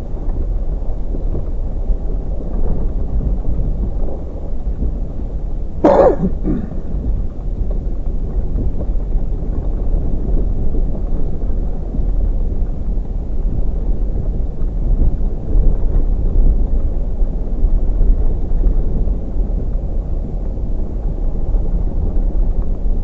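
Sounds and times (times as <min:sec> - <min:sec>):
man coughing: 0:05.8 - 0:06.8.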